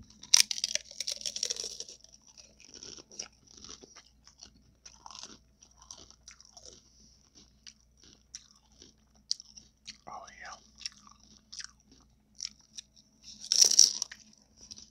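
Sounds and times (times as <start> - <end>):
chewing with crackles: 0.0 - 14.9
person biting into taco: 0.1 - 6.8, 13.3 - 14.9.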